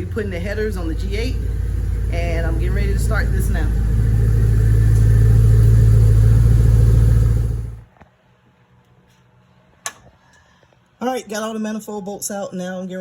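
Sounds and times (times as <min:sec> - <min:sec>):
car engine running: 0:00.0 - 0:07.9.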